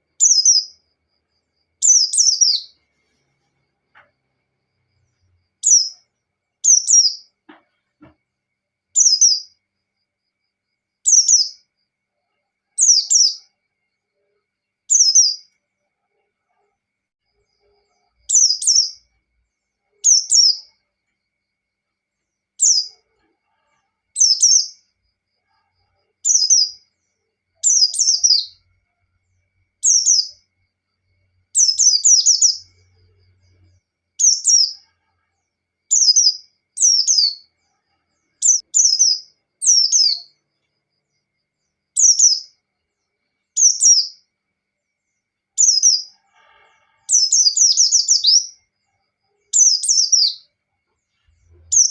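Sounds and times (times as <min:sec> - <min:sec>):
bird chirping song: 0:00.0 - 0:51.9.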